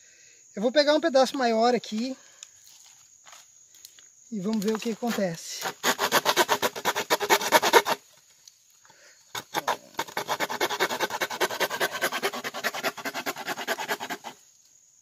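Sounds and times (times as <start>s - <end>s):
bamboo rubbed back and forth: 4.6s - 8.3s, 9.2s - 14.6s.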